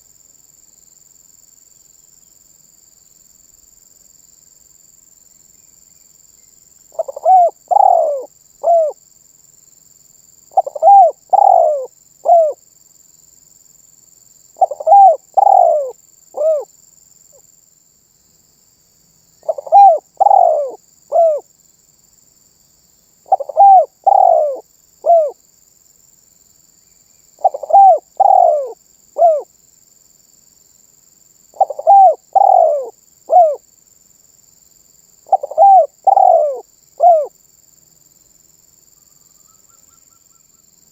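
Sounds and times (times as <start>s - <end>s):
dove cooing: 7.0s - 9.0s, 10.5s - 12.6s, 14.6s - 16.7s, 19.4s - 21.4s, 23.3s - 25.4s, 27.4s - 29.5s, 31.6s - 33.6s, 35.3s - 37.3s.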